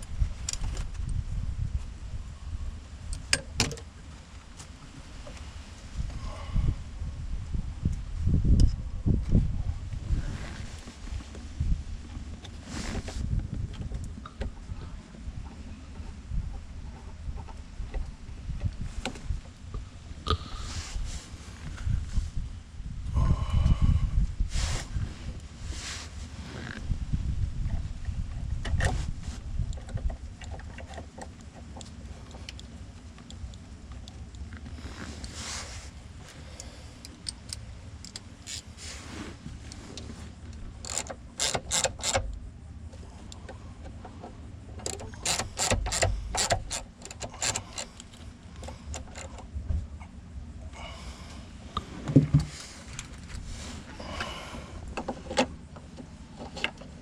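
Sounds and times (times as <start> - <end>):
small parts clicking and rattling: 36.6 - 38.7, 40.5 - 49.6.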